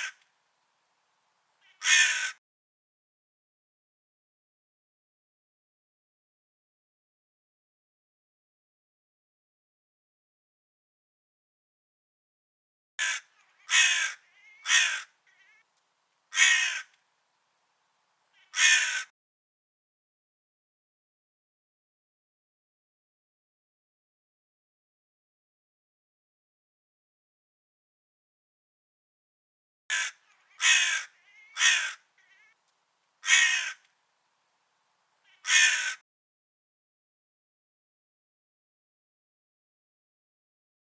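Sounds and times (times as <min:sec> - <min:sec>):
crow cawing: 0:01.6 - 0:02.4, 0:13.0 - 0:15.6, 0:16.3 - 0:17.0, 0:18.4 - 0:19.1, 0:29.9 - 0:32.6, 0:33.2 - 0:33.9, 0:35.3 - 0:36.0
faint short bird call: 0:29.9 - 0:32.6.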